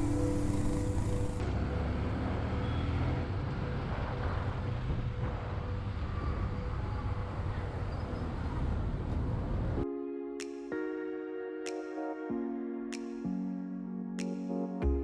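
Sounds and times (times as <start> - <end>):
road and wind noise: 0.0 - 9.8.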